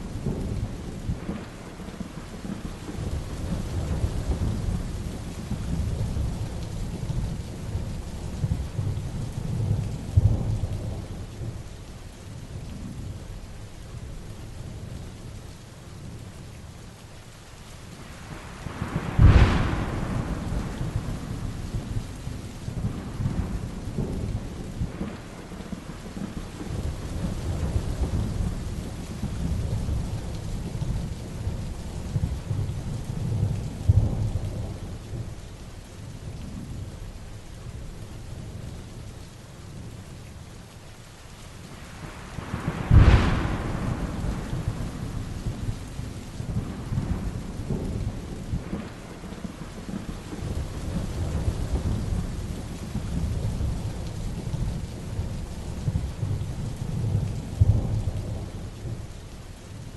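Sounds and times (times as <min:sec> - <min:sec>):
thunder rumbling: 0:00.0 - 0:11.7, 0:18.2 - 0:35.4, 0:41.7 - 0:59.2
heavy rain: 0:00.0 - 0:59.9
sharp close thunderclap: 0:18.6 - 0:31.1, 0:42.0 - 0:59.1.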